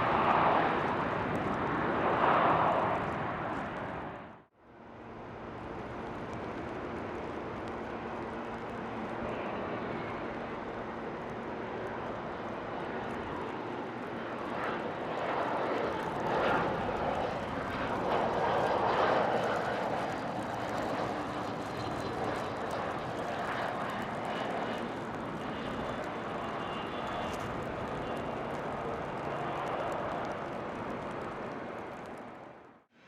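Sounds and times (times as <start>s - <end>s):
jet passing by on landing: 0.0s - 4.5s, 5.1s - 32.6s.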